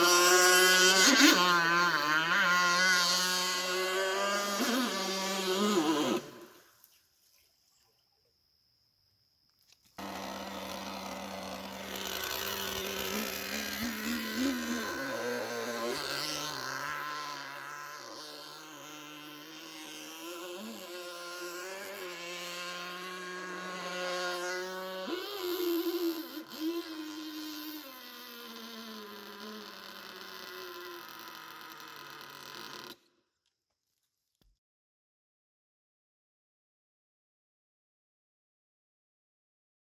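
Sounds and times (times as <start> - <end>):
small nitro engine buzzing: 0.0 - 6.8, 10.0 - 33.1.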